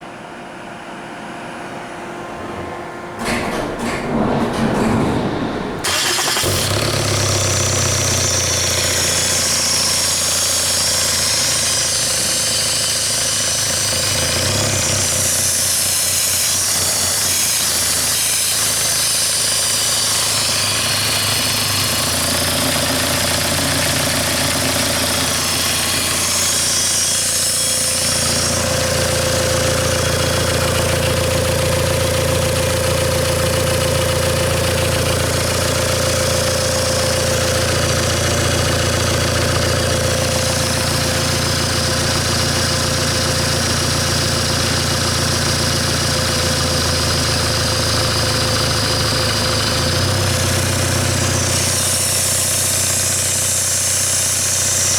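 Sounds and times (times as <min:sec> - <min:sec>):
car engine running: 0:05.4 - 0:54.9
steady whine: 0:22.8 - 0:43.8.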